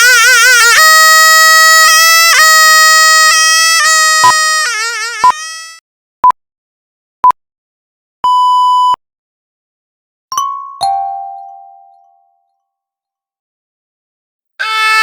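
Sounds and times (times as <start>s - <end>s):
wind instrument note: 0.0s - 5.8s, 14.6s - 15.0s
two-note chime: 10.4s - 12.5s.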